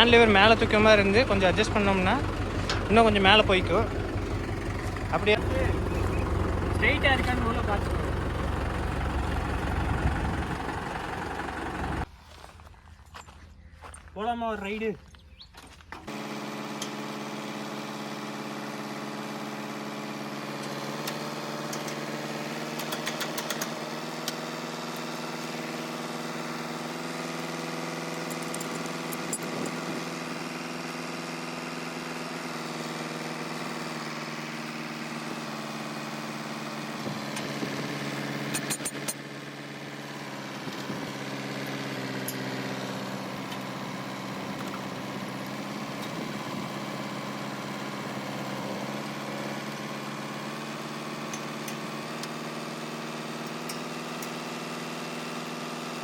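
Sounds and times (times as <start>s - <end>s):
tractor engine running: 0.0s - 12.5s, 15.7s - 55.6s
clicks and rattles: 28.2s - 29.8s.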